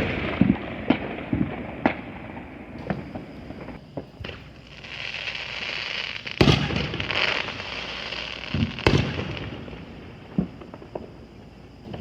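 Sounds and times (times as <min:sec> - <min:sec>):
distant fireworks popping: 0:00.0 - 0:12.0.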